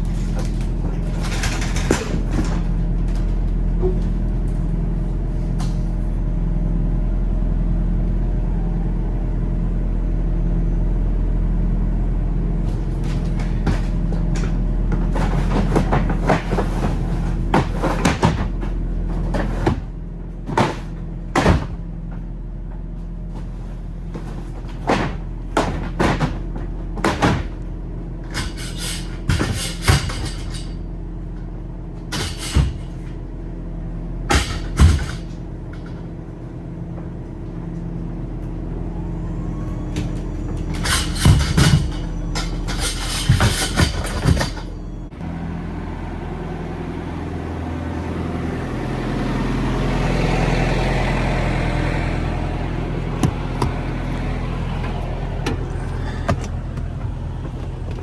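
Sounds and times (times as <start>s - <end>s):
sharp knocks and rattles: 0.0s - 4.6s, 12.7s - 33.3s, 34.2s - 37.8s, 40.4s - 44.8s
truck engine running: 0.0s - 58.0s.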